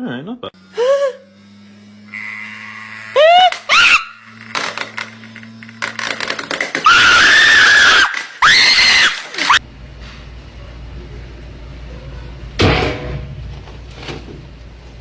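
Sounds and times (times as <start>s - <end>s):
person screaming: 6.8s - 9.6s.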